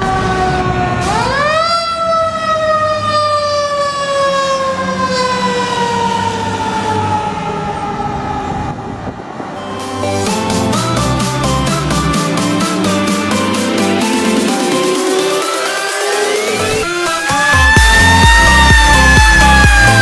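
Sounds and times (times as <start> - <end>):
fire engine siren winding: 0.0 - 8.6, 11.6 - 20.0
truck engine rumbling: 5.5 - 20.0.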